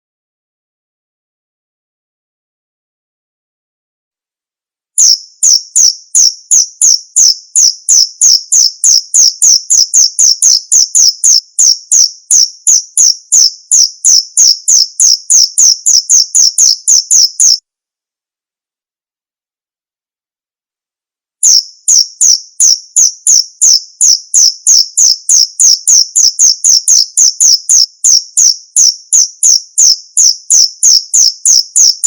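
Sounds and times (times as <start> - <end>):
cricket chirping: 5.0 - 17.6, 21.4 - 32.0.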